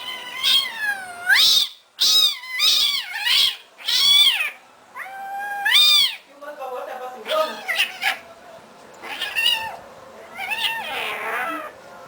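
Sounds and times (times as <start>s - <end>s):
cat meowing: 0.0s - 1.4s, 7.3s - 8.2s, 9.0s - 11.8s.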